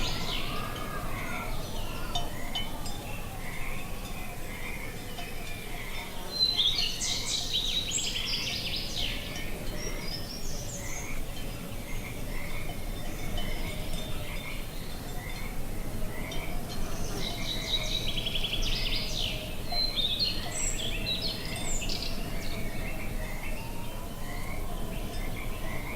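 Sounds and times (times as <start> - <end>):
low wind rumble: 0.0 - 6.1.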